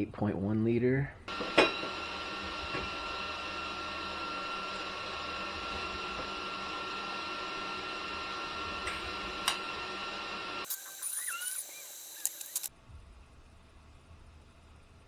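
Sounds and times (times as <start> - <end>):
mechanical hum: 1.2 - 15.0
high whine: 1.3 - 12.7
sharp click: 10.7 - 12.7.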